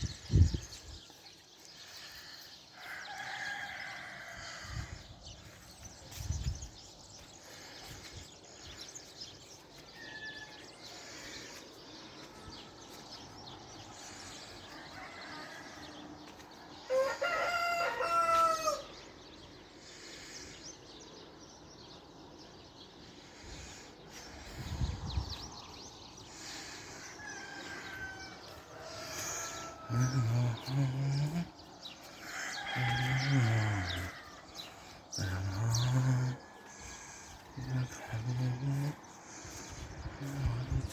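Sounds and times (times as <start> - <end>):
small birds chirping: 0.0 - 40.9
rooster crowing: 2.8 - 5.1, 10.0 - 10.8, 14.6 - 19.0, 27.1 - 31.4, 32.0 - 37.0.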